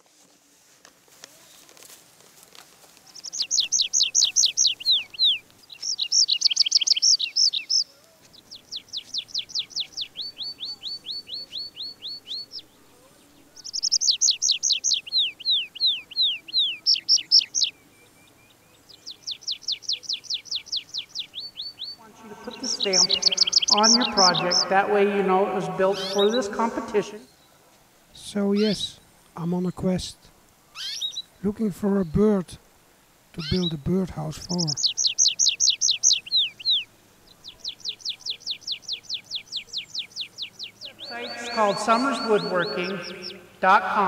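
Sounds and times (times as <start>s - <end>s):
songbird whistling down-slurred notes: 21.3s - 24.8s.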